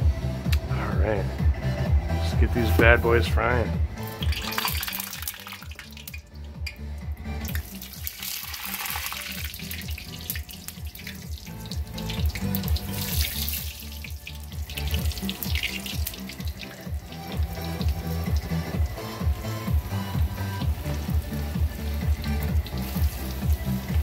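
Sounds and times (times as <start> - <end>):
music with low bass line: 0.0 - 24.0
food sizzling in hot oil: 4.0 - 6.2, 7.5 - 24.0.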